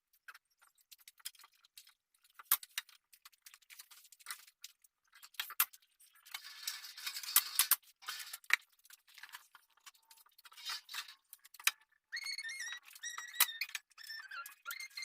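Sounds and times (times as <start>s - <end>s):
rustling and scraping: 0.2s - 11.7s.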